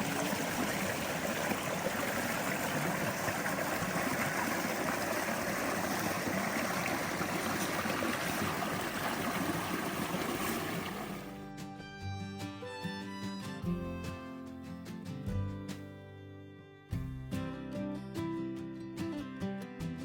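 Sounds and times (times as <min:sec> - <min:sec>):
water splashing over waterfall: 0:00.0 - 0:11.4.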